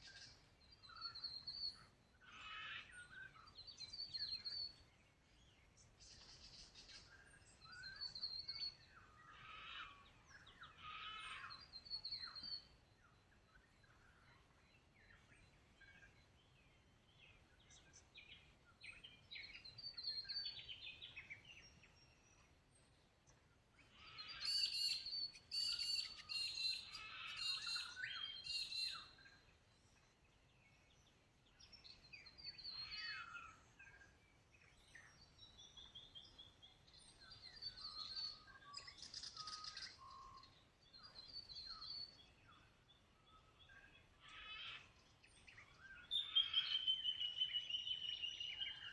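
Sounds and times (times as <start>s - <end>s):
birds singing and chirping: 0.0s - 48.9s
faint outdoor background noise: 0.0s - 48.9s.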